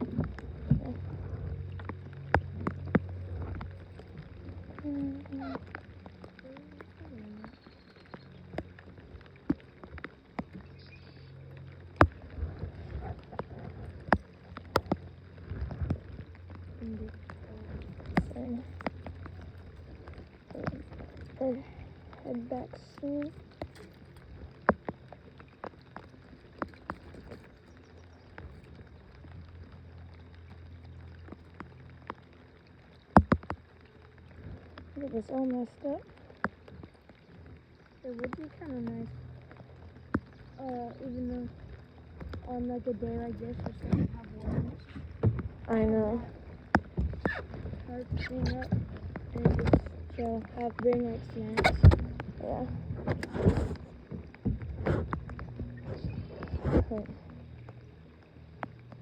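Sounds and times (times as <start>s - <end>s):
knocks and taps on boat: 0.0s - 7.6s, 33.1s - 33.6s, 42.2s - 57.8s
low steady hum: 0.0s - 59.0s.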